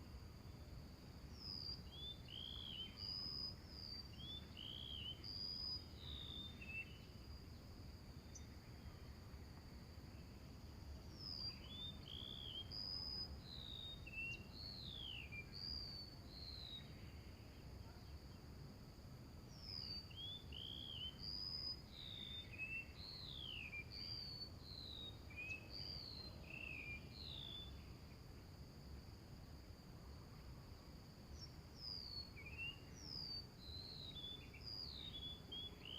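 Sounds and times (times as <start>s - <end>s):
high insect drone: 0.0s - 35.9s
small birds chirping: 1.3s - 9.1s, 11.1s - 18.6s, 19.4s - 28.3s, 31.3s - 35.9s.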